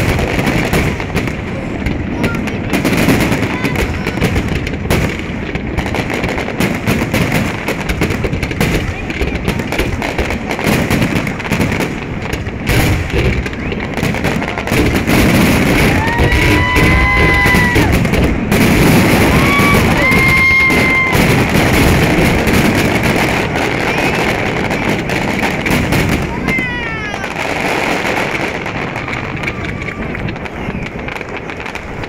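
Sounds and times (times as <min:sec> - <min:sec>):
fireworks banging and crackling: 0:00.0 - 0:32.0
firework whistle: 0:12.7 - 0:22.6, 0:27.2 - 0:32.0.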